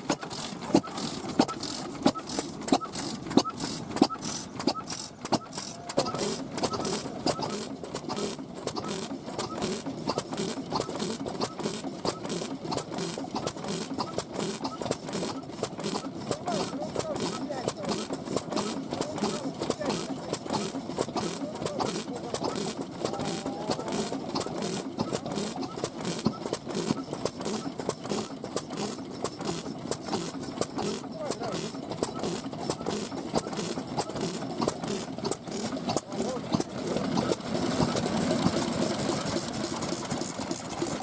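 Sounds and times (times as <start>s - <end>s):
hissing puffs: 0.0s - 16.8s
stationary engines running: 0.0s - 41.0s
mechanical clicking: 0.1s - 41.0s.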